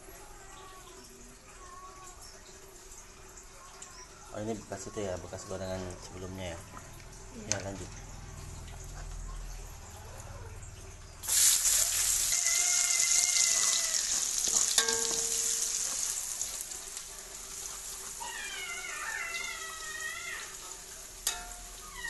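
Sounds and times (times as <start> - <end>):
onion and garlic sizzling in oil: 11.2 - 22.0.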